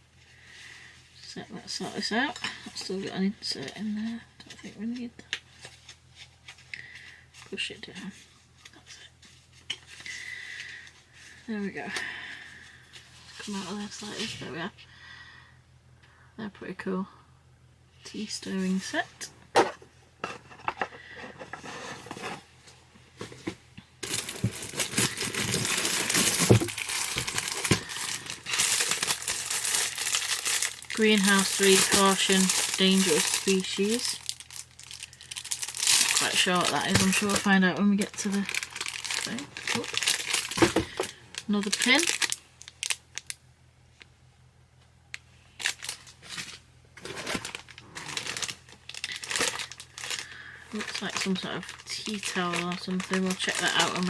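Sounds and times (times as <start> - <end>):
packaging crinkling and rustling: 23.2 - 43.4, 45.6 - 54.0.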